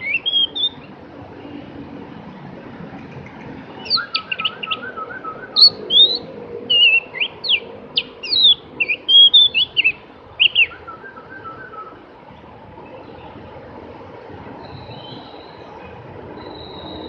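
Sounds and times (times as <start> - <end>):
bird singing whistled notes: 0.0 - 0.9, 3.8 - 12.0, 14.6 - 15.7, 16.4 - 17.0
bird trill: 0.0 - 0.9, 3.8 - 11.9, 14.6 - 15.6, 16.4 - 17.0.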